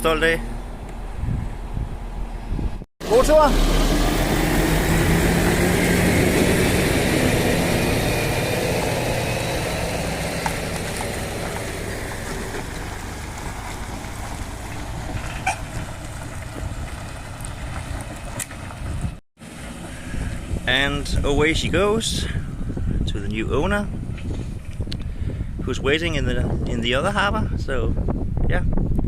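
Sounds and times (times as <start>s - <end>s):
truck engine pulling away: 3.0s - 22.5s.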